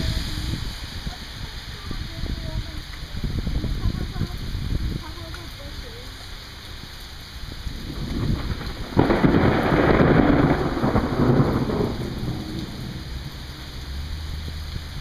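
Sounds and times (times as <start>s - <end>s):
steady rain: 0.0s - 15.0s
thunder rumble and crack: 7.6s - 15.0s.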